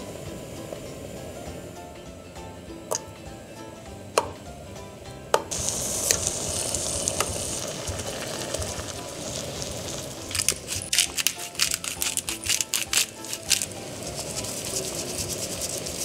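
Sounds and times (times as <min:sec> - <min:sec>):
food sizzling in a frying pan: 0:05.5 - 0:16.0.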